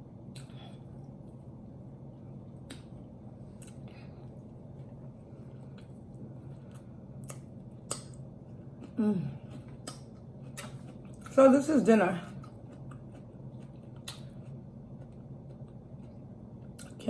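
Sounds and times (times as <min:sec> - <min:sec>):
faint low hum: 0:00.0 - 0:17.0
chewing and finger smacks: 0:02.5 - 0:03.9, 0:04.8 - 0:08.2, 0:08.8 - 0:11.4, 0:12.4 - 0:17.0.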